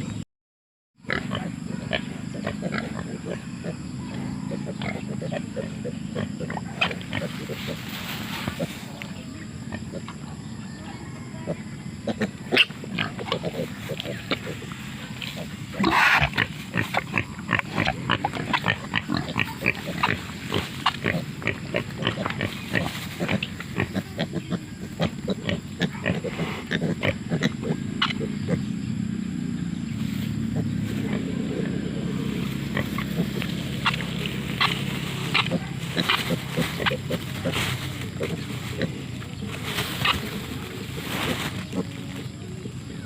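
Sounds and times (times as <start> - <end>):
low rumble: 27.8 - 42.3
wild pigs clicking and snapping: 32.7 - 42.0.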